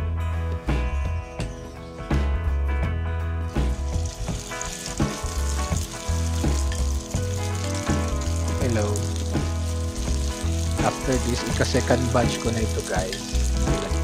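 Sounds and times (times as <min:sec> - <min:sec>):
meat patties sizzling in oil: 0:03.5 - 0:14.0.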